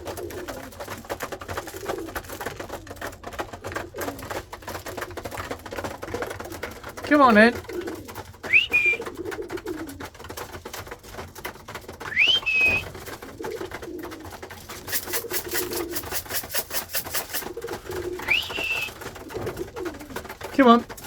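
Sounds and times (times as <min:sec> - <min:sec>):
pigeons cooing: 0:00.0 - 0:21.0
rising whistles: 0:08.5 - 0:09.0, 0:12.1 - 0:12.9, 0:18.2 - 0:19.0
tin of grain rattling: 0:14.8 - 0:17.6.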